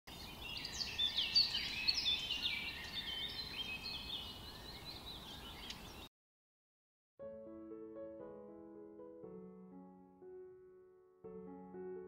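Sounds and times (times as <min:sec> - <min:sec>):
songbirds chirping and whistling: 0:00.1 - 0:06.1.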